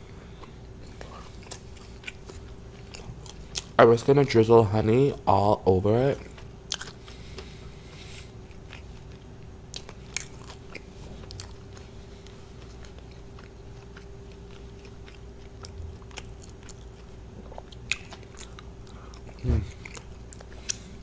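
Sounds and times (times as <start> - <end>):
faint steady hum: 0.0 - 21.0
chewing and biting food: 0.3 - 3.8, 6.0 - 21.0.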